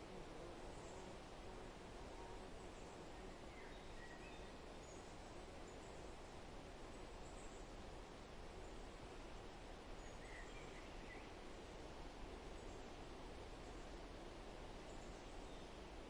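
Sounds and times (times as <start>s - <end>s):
background hiss: 0.0s - 16.0s
faint bird chirps: 2.5s - 6.2s, 10.0s - 11.4s.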